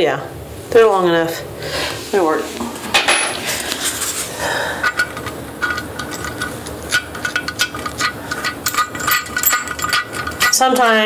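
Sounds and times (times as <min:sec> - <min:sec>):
metal bolts clinking: 0:04.8 - 0:11.0.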